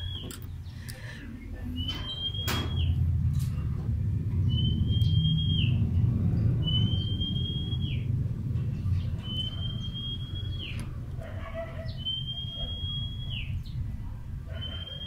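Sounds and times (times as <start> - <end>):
bird whistling call: 0.0 - 0.3, 1.8 - 3.0, 4.5 - 5.8, 6.6 - 8.1, 9.2 - 10.8, 11.9 - 13.7, 14.5 - 15.0
low background rumble: 0.0 - 14.9.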